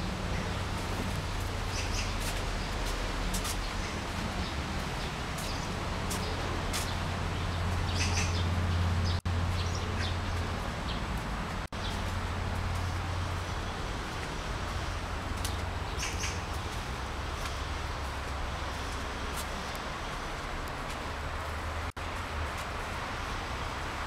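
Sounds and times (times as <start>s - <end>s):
bird chirps: 7.9s - 10.4s, 15.9s - 16.5s.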